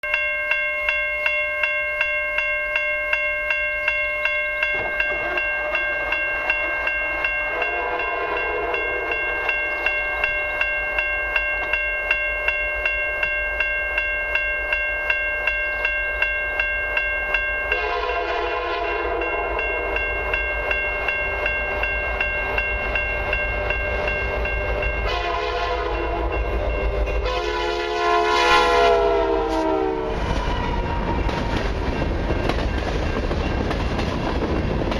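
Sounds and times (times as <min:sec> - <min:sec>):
level crossing bell dinging: 0:00.0 - 0:27.4
train rumbling: 0:04.1 - 0:34.9
locomotive horn blasts: 0:07.5 - 0:09.5, 0:17.7 - 0:19.9, 0:25.0 - 0:31.1.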